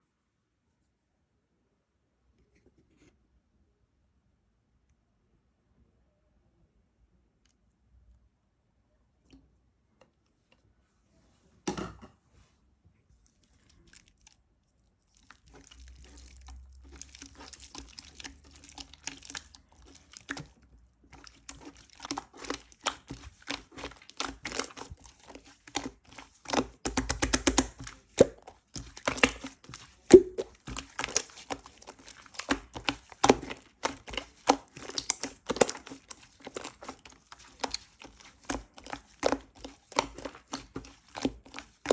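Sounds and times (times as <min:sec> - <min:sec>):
food handling taps and clicks: 0:15.6 - 0:41.9.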